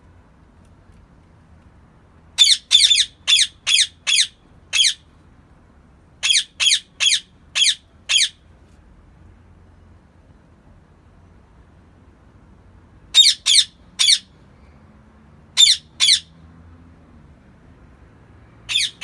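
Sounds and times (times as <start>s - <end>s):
parakeet screeching: 2.4s - 5.0s, 6.2s - 8.4s, 13.2s - 14.3s, 15.6s - 16.3s, 18.7s - 19.0s.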